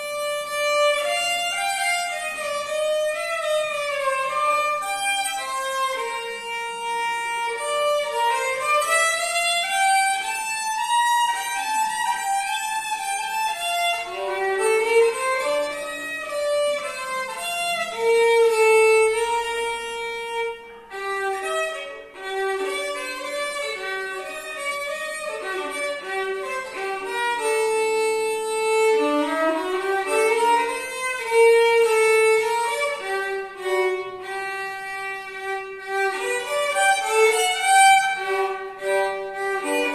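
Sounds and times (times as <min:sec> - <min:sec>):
solo violin gliding notes: 0:00.0 - 0:39.9.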